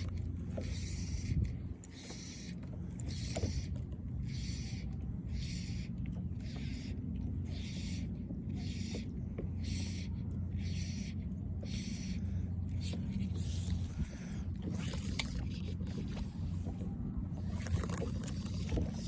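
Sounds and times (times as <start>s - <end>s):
water: 0.0s - 19.0s
wind: 0.0s - 19.0s
fishing line zipping through guides: 12.8s - 16.6s, 17.4s - 19.0s.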